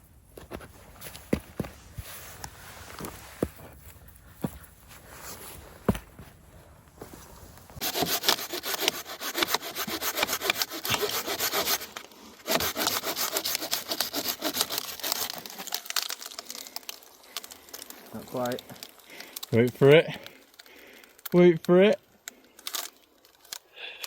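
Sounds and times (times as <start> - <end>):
hand saw cutting wood: 7.8 - 15.9.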